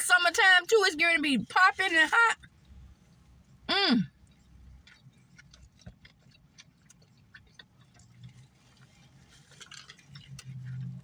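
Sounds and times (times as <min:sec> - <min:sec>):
person chewing food: 0:02.4 - 0:11.0.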